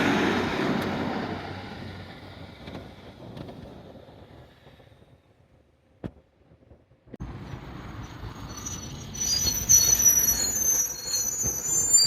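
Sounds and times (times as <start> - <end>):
train rumbling: 0.0 - 5.5, 6.5 - 12.0
train wheels squealing: 7.8 - 12.0.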